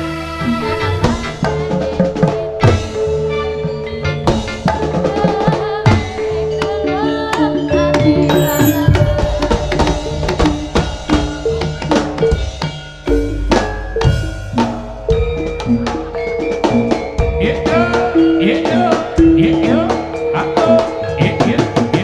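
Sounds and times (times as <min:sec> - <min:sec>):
pitch-bending melody line: 0:08.3 - 0:09.5.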